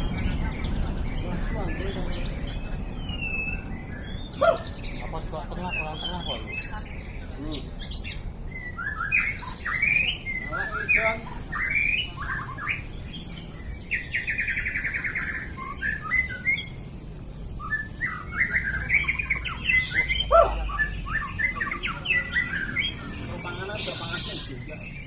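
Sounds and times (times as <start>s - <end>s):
bird singing whistled phrases: 7.8s - 23.1s, 23.8s - 25.0s.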